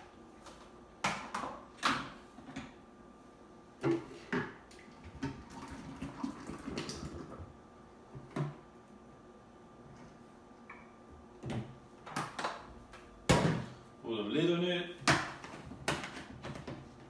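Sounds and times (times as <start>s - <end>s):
shake gurgling as poured: 5.4s - 7.4s.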